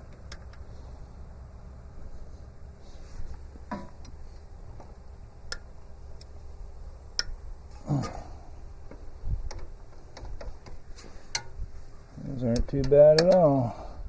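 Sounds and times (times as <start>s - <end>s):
ratchet wrench clicking: 12.4s - 13.7s.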